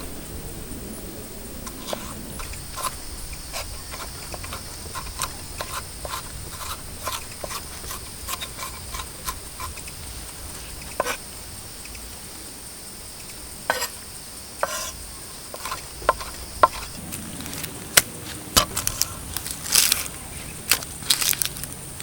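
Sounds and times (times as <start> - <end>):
night insects chorus: 0.0 - 22.0
campfire crackling and popping: 1.4 - 11.2, 15.6 - 21.9.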